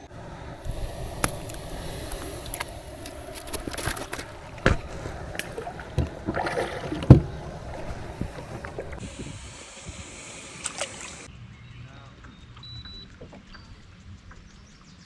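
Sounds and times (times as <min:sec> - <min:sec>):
water sounds: 0:00.0 - 0:11.3
wind rumbling on microphone: 0:00.0 - 0:11.3
gear knocking against hull: 0:00.1 - 0:09.1.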